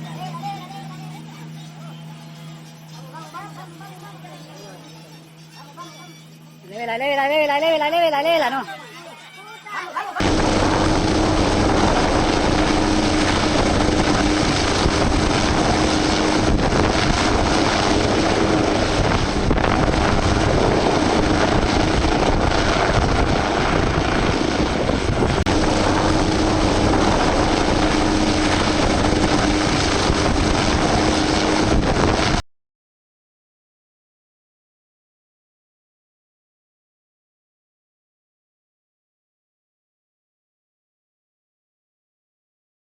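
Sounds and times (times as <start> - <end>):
aircraft engine drone: 10.2 - 32.4
wind rushing over microphone: 10.2 - 32.4.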